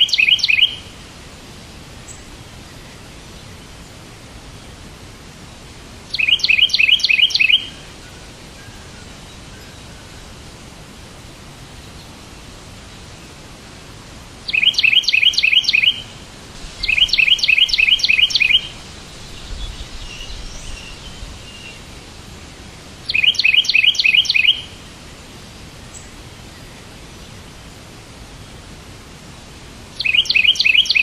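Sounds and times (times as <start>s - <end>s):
soft bird calls: 0.0s - 1.0s, 6.1s - 10.4s, 14.5s - 24.8s, 30.0s - 31.0s
songbird singing: 0.0s - 31.0s
steady background hiss: 0.0s - 31.0s.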